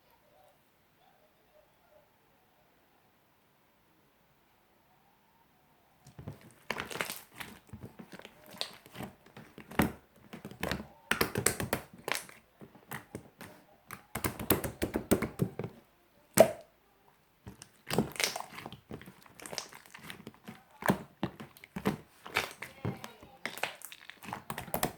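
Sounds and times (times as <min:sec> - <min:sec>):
slime popping: 0:06.1 - 0:16.7, 0:17.5 - 0:24.9
slime squishing: 0:06.1 - 0:16.7, 0:17.4 - 0:24.9.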